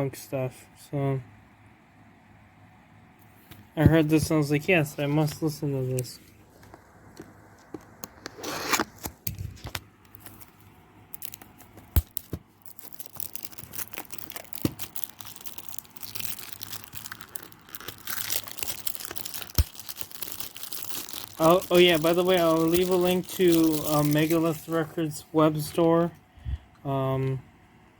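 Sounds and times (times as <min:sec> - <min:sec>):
plastic packaging crinkling: 0:06.6 - 0:25.9.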